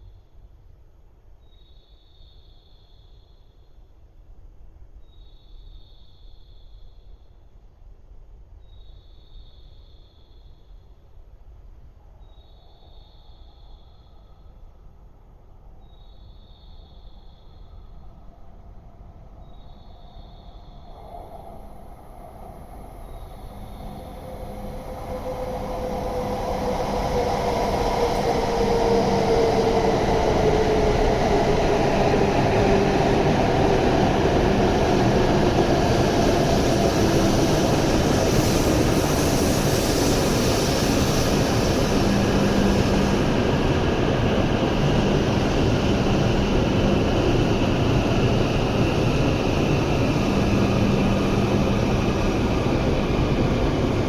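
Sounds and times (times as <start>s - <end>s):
train rushing rumble inside car: 20.9s - 54.0s.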